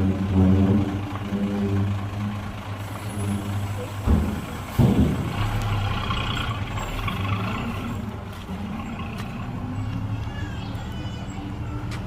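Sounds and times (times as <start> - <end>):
diesel machinery engine hum: 0.0 - 12.0
loud machinery clunk: 3.9 - 5.8.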